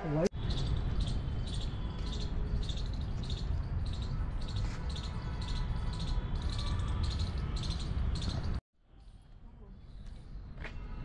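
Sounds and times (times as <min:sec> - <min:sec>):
bird chirping: 0:00.4 - 0:08.6.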